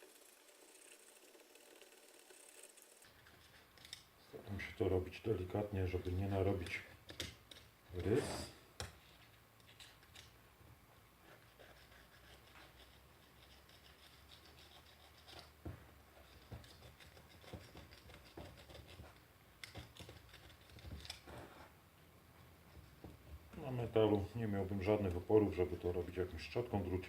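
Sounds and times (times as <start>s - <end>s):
small knife scraping plastic: 11.3s - 15.6s, 16.2s - 21.7s.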